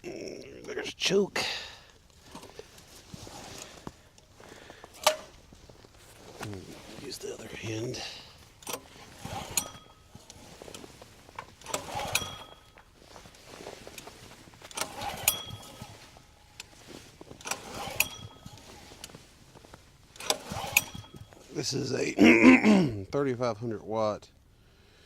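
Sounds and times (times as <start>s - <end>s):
recoil starter rope pull: 2.2s - 5.5s, 6.2s - 21.7s
engine cranking click: 4.9s - 5.4s, 8.6s - 10.8s, 11.4s - 12.9s, 14.6s - 19.2s, 20.1s - 21.5s.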